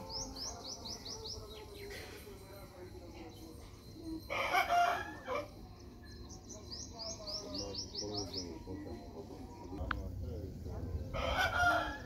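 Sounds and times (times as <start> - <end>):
small bird chirping: 0.0 - 2.1, 5.8 - 9.0.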